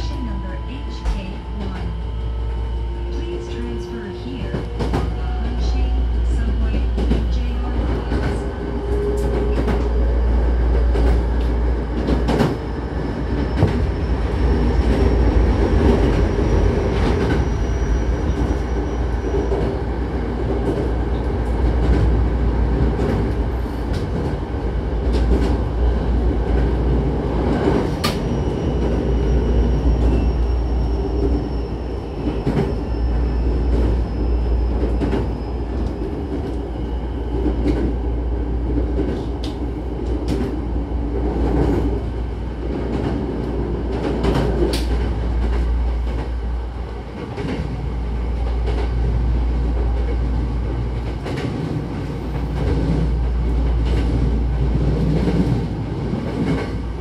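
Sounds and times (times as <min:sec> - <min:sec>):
train rumbling with wheel clicks: 0:00.0 - 0:57.0.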